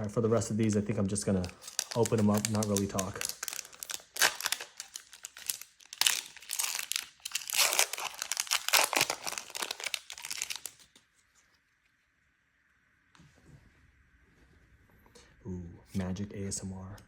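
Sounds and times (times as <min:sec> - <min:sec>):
foil wrapper crinkling and tearing: 0:00.4 - 0:11.0.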